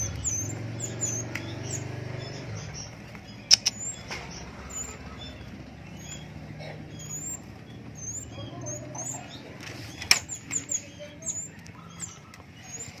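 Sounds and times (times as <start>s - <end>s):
birds thin high chirps: 0.0s - 13.0s
sharp tap: 3.5s - 4.3s
wings fluttering in cage: 7.0s - 13.0s.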